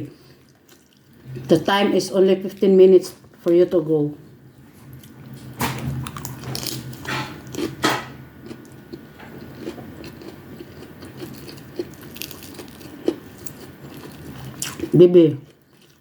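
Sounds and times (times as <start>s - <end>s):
person chewing: 0.4s - 1.5s, 4.9s - 16.0s
crunchy bites: 9.5s - 15.0s.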